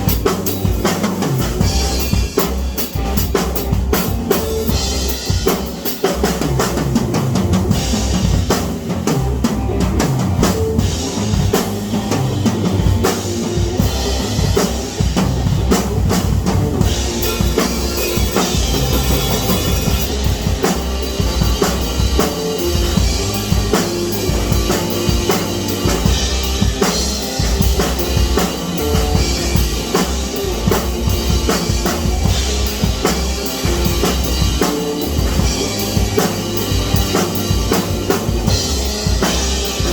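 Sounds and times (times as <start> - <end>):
drum kit playing a beat: 0.0 - 39.9.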